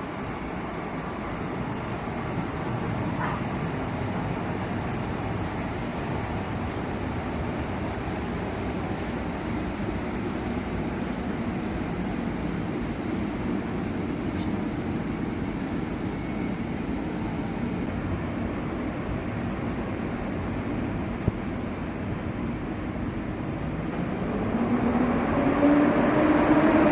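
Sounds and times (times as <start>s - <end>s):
high wheel squeal: 9.6s - 10.9s, 11.7s - 17.8s.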